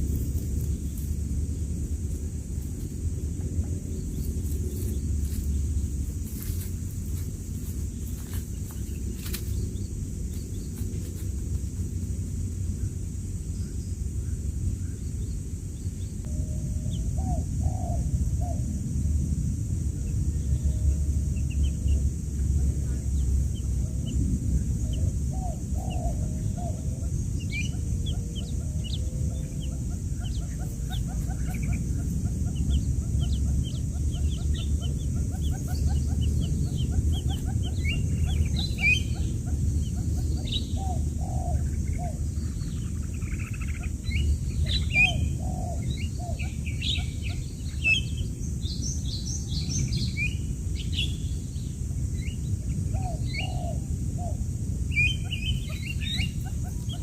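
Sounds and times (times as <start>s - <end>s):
steady low rumble: 0.0s - 57.0s
chicks peeping: 20.0s - 50.9s, 54.9s - 57.0s.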